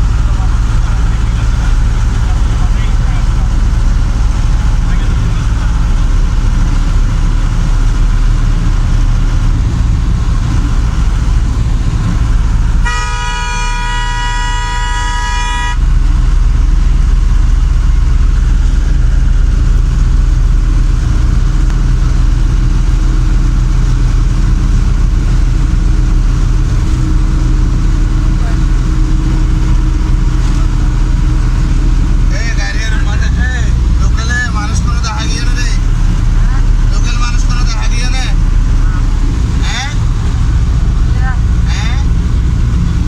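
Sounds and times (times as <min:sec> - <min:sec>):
vehicle road rumble: 0:00.0 - 0:43.0
vehicle horn: 0:12.8 - 0:16.0.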